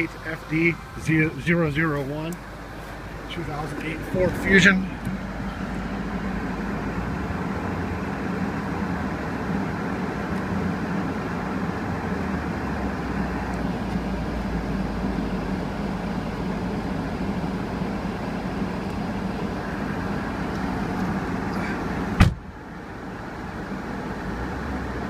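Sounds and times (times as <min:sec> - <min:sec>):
car engine running: 0:00.0 - 0:25.0.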